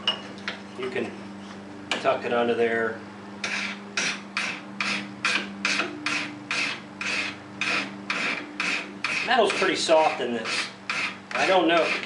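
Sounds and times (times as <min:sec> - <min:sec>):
file strokes on steel: 0:03.4 - 0:12.0.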